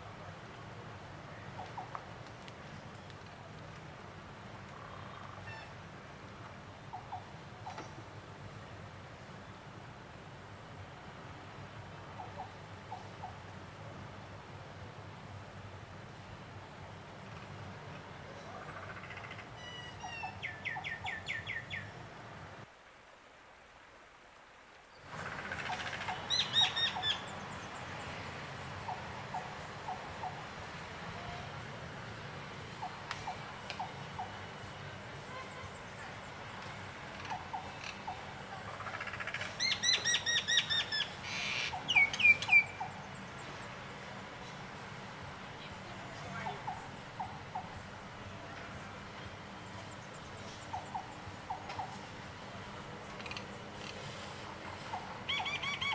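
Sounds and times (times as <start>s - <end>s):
outdoor hiss: 0.0s - 55.6s.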